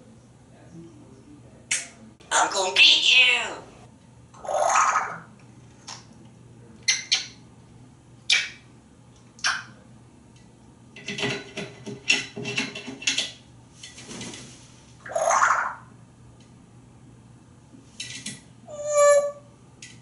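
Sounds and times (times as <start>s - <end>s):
parrot harsh squawk: 4.4s - 5.3s, 15.0s - 15.8s, 18.7s - 19.4s
parrot clicking and squeaking: 6.8s - 7.4s, 8.3s - 8.6s, 9.4s - 9.7s.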